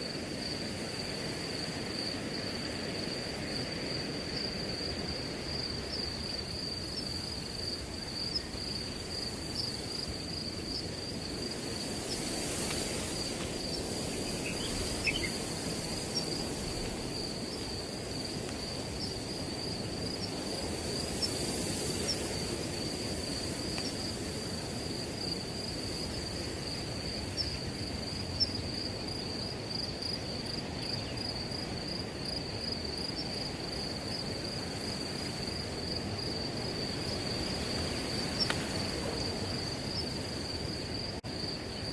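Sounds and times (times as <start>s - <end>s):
crickets trilling: 0.0s - 41.9s
wind through grass: 0.0s - 41.9s.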